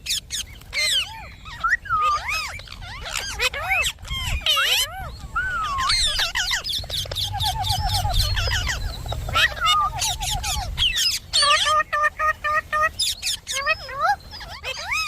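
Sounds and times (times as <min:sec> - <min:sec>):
parakeet chattering and squawking: 0:00.0 - 0:15.0
low rumble: 0:04.9 - 0:11.0.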